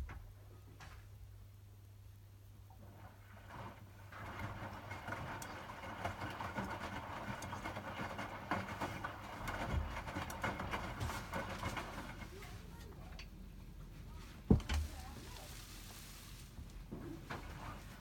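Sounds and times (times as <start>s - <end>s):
water sloshing in drum: 2.8s - 12.8s
washing machine tumbling: 2.8s - 18.0s.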